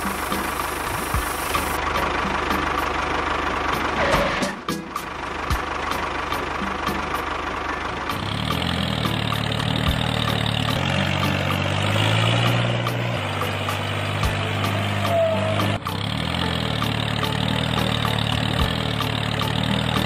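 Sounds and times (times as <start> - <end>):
small motor droning: 7.7 - 20.0.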